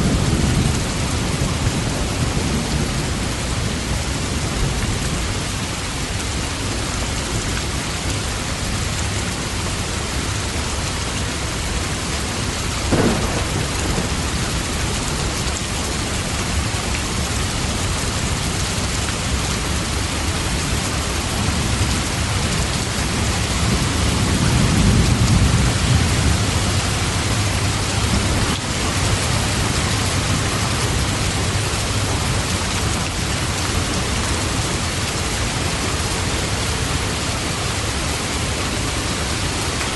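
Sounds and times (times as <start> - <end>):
rain falling: 0.0 - 39.9
thunder rumbling: 12.8 - 18.5, 21.3 - 34.8
sharp thunder crack: 12.9 - 15.2.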